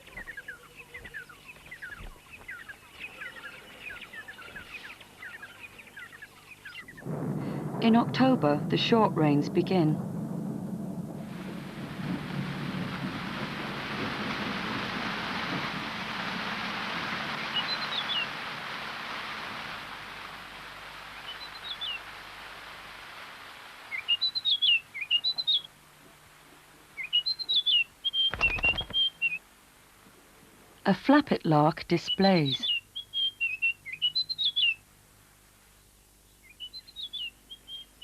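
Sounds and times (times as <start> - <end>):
small bird chirping: 0.0 - 7.0, 23.9 - 25.7, 27.0 - 29.4, 32.0 - 34.8, 36.3 - 38.0
steady rain falling: 0.0 - 38.0.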